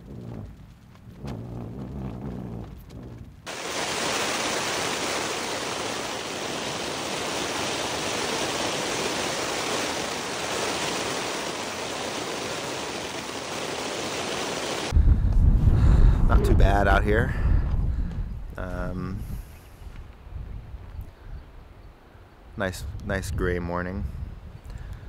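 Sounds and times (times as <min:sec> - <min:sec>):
hard rain falling: 0:03.5 - 0:15.0.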